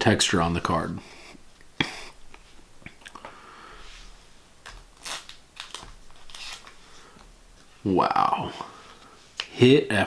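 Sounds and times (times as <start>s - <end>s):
trading cards rustling and sliding: 3.9s - 7.7s.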